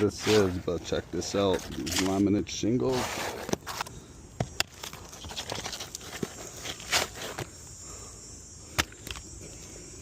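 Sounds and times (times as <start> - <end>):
shingles clicking and scraping: 0.0 - 7.5.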